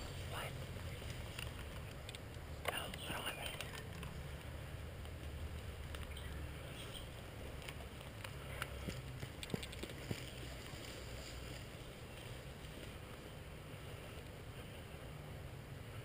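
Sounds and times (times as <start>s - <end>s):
steady low rumble: 0.0s - 16.0s
sharp clicks: 0.9s - 6.5s.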